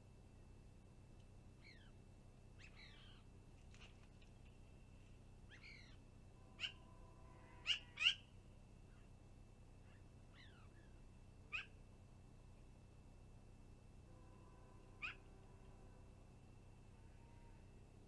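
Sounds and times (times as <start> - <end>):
sharp bird calls: 2.6 - 3.2, 5.5 - 6.0, 6.6 - 8.3, 9.8 - 11.8, 15.0 - 15.3.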